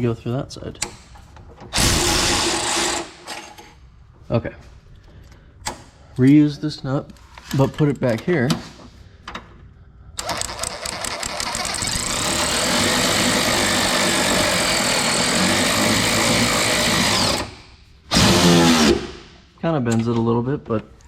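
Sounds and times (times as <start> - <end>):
power tool clicking and buzzing: 1.7 - 3.1, 10.2 - 19.1.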